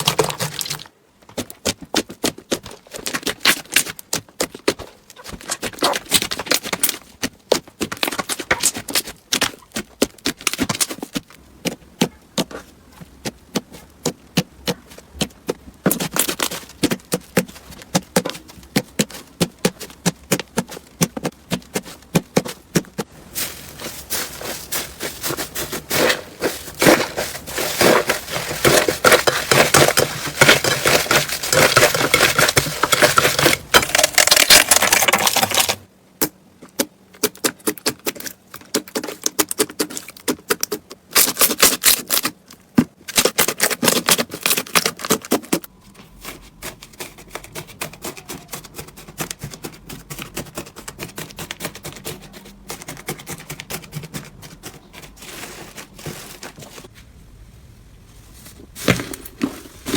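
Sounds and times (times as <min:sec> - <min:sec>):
slime crackling and popping: 0:26.8 - 0:35.8.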